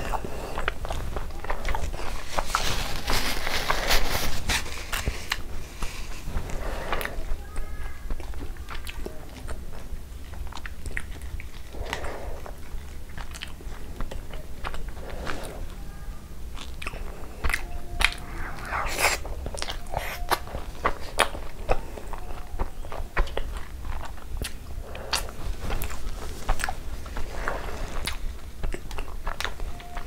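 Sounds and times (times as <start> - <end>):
person biting and chewing: 16.6 - 21.5.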